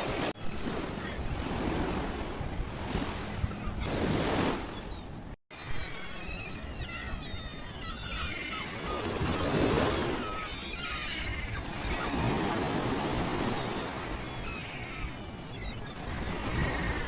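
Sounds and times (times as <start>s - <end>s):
small birds chirping: 4.7s - 12.5s, 13.5s - 17.0s.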